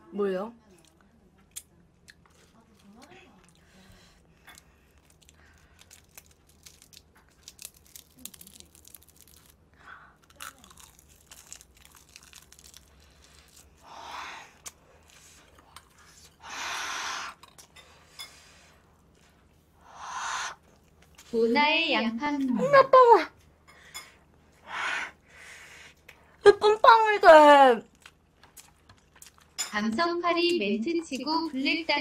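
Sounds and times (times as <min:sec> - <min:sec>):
person chewing crunchy food: 0:01.5 - 0:13.8, 0:27.9 - 0:29.6.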